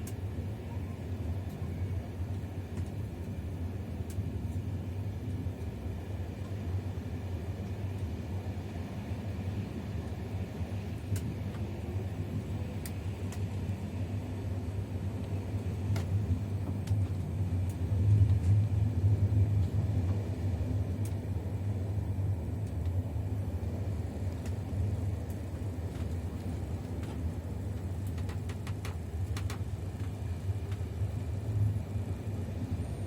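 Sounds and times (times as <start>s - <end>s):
passenger train rumbling on track: 0.0s - 33.0s.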